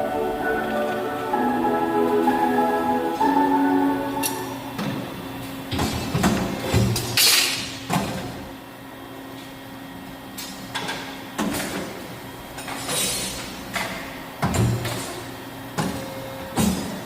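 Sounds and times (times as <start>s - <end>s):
machine hum: 0.0s - 5.8s.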